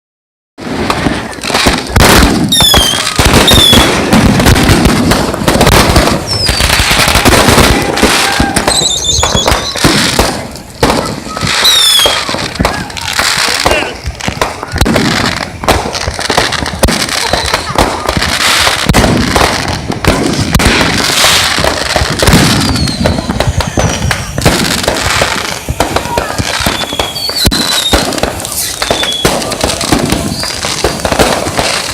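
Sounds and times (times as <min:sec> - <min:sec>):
firecrackers crackling: 0:00.6 - 0:31.9
falling whistle: 0:02.5 - 0:03.8, 0:06.3 - 0:06.7, 0:08.2 - 0:09.8, 0:11.6 - 0:12.3, 0:22.6 - 0:23.8, 0:26.6 - 0:28.0, 0:28.6 - 0:29.3
high whistles: 0:02.5 - 0:03.9, 0:06.3 - 0:06.8, 0:08.6 - 0:09.9, 0:11.4 - 0:12.3, 0:22.6 - 0:24.4, 0:25.4 - 0:29.3, 0:30.3 - 0:30.6.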